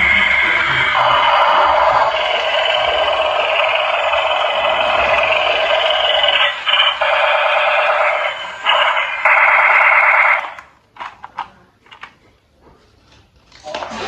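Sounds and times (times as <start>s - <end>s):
tinny toy electronic sound effects: 0.0s - 10.6s.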